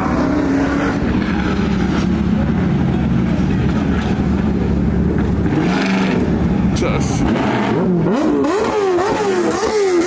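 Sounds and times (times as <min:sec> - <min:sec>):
loud car engine and exhaust: 0:00.0 - 0:10.0.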